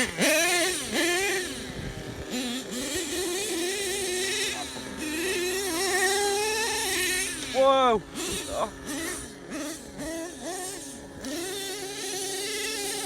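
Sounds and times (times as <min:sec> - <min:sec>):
small nitro engine running: 0:00.0 - 0:13.0.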